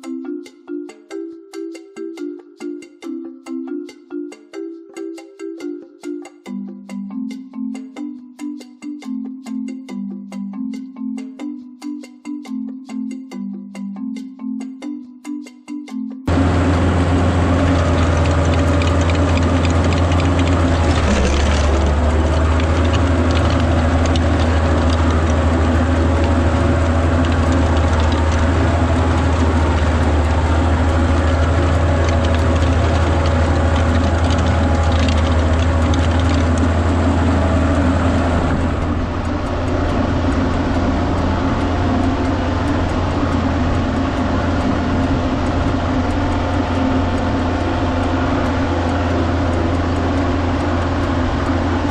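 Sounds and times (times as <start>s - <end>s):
rotary tiller clattering: 16.3s - 51.9s
tractor engine under load: 16.3s - 51.9s.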